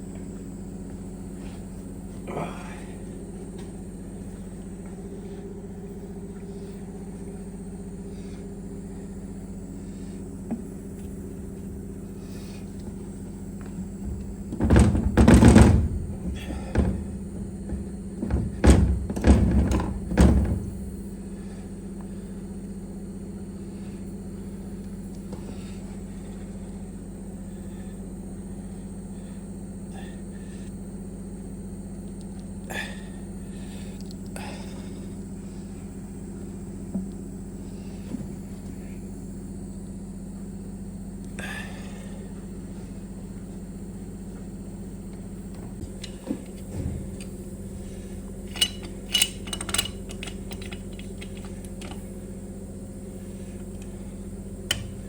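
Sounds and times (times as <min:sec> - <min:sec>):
steady low hum: 0:00.0 - 0:55.0
heavy knocks and thuds: 0:13.6 - 0:21.0, 0:45.6 - 0:48.0.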